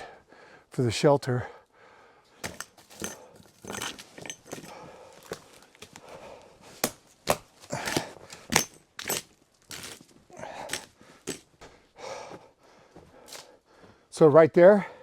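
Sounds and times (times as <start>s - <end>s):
dry wood snapping: 5.2s - 11.5s.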